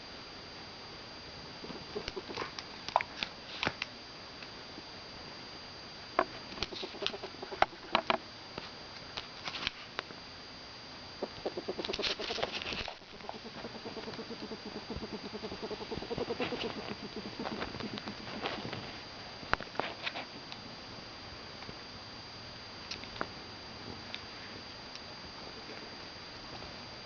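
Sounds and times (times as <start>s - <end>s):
faint high whine: 0.0s - 27.0s
ferret clucking and chirping: 6.7s - 7.9s, 11.2s - 18.5s.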